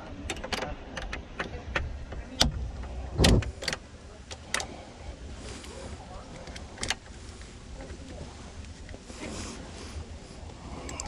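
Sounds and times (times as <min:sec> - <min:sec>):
steady low rumble: 0:00.0 - 0:11.0
loud thump: 0:02.4 - 0:03.6.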